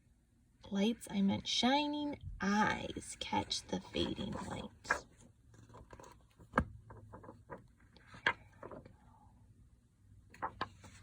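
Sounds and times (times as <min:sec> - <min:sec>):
paper pages rustling: 0:03.4 - 0:09.0, 0:10.3 - 0:11.0.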